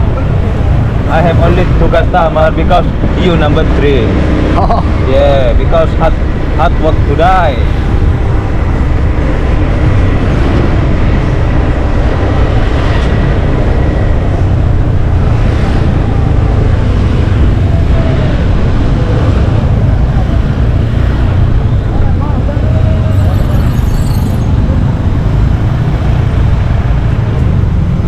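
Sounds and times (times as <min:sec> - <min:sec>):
wind over microphone: 0:02.8 - 0:28.0.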